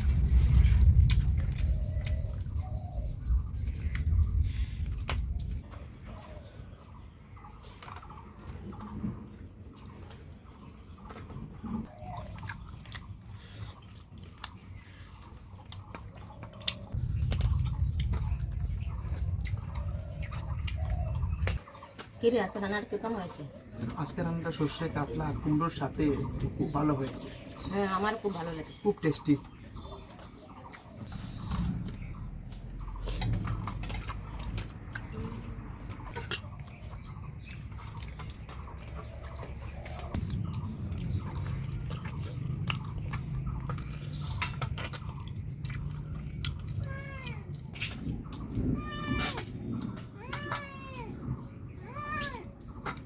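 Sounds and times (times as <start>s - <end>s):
person chewing food: 0.0s - 6.8s, 9.7s - 22.1s, 30.0s - 50.0s.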